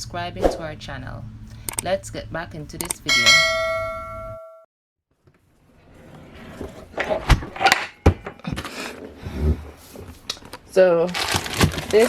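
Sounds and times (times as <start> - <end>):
ringing chime: 3.1 - 4.7
kitchen rustling: 11.2 - 12.0.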